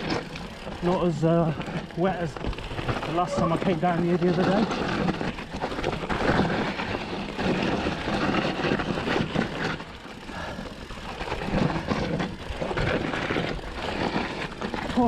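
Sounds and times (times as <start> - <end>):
bike rattling: 0.0 - 15.0
bike tyres rolling over dirt: 0.0 - 15.0.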